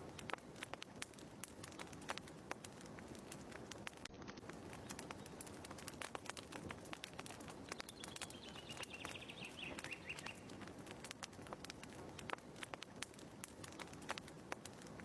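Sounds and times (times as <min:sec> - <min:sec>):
wood fire crackling: 0:00.0 - 0:15.0
faint bird twitter: 0:07.6 - 0:10.6.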